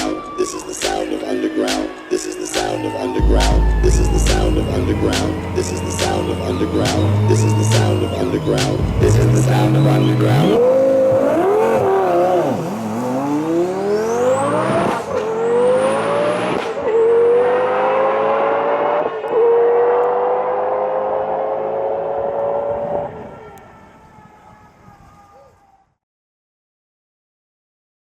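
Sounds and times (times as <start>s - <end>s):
high turbo whistle: 2.0s - 10.6s
sports car engine accelerating hard: 3.2s - 23.1s.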